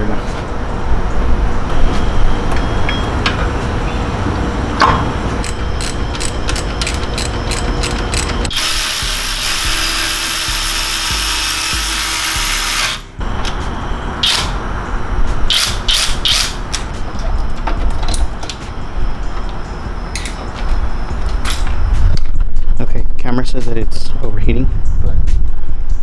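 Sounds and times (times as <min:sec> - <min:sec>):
ratchet wrench clicking: 0:05.4 - 0:13.1, 0:14.2 - 0:14.6, 0:15.5 - 0:16.9.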